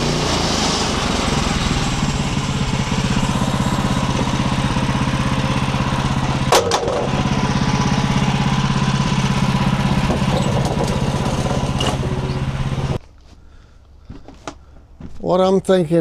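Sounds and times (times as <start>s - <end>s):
sawmill engine running: 0.0s - 13.0s
sharp knocks: 4.6s - 13.0s.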